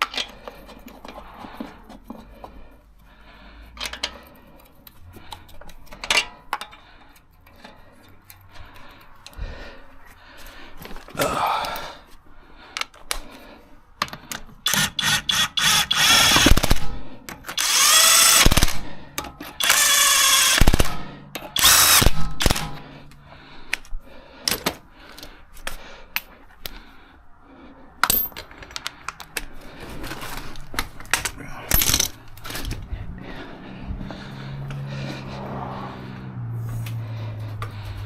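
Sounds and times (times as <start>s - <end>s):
tools clicking and clanking: 0.0s - 2.8s, 3.6s - 9.4s, 14.0s - 26.8s, 28.0s - 32.9s
impact wrench bursts: 14.6s - 23.2s.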